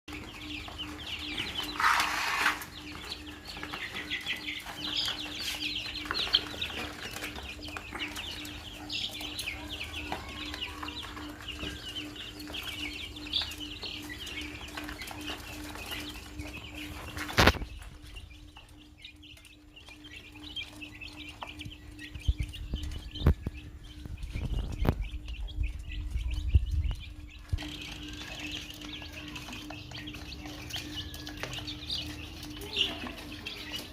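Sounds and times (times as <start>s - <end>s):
chicks cheeping: 0.0s - 33.9s
steady low hum: 11.6s - 30.9s.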